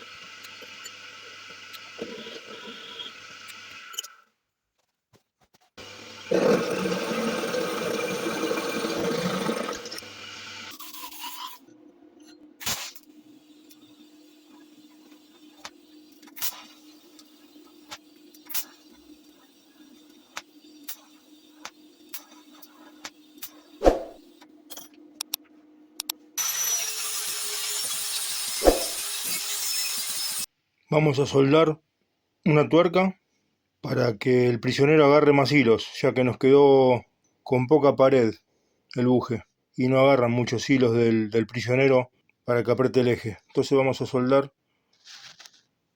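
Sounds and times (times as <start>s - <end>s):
power tool rasping: 26.4s - 30.5s.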